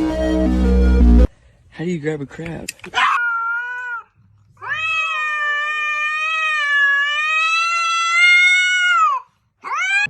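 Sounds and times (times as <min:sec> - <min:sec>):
cat meowing: 0:03.0 - 0:10.0.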